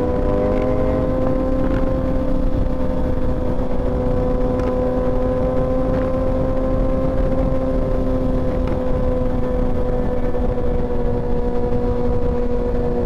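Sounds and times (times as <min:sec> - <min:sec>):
motorcycle engine cruising: 0:00.0 - 0:13.0
wind and road noise: 0:00.0 - 0:13.0.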